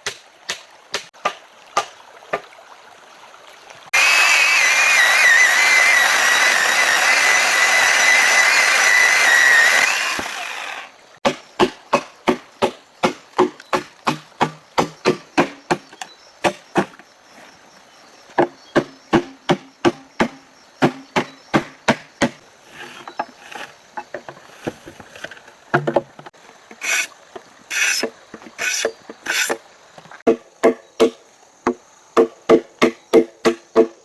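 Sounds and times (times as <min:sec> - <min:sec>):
longer hissy strokes: 0:26.7 - 0:29.6
sharp blows on wood: 0:26.8 - 0:27.1, 0:27.7 - 0:29.6.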